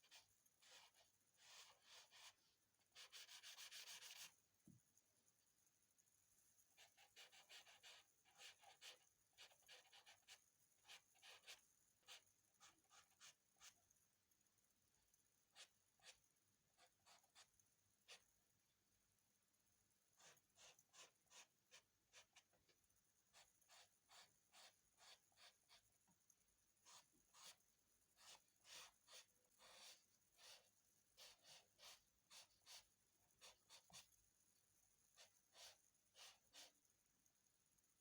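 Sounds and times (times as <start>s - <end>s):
pencil scratching on paper: 0.0s - 4.3s, 6.8s - 13.8s, 15.5s - 18.3s, 20.2s - 25.9s, 26.8s - 34.2s, 35.2s - 36.8s.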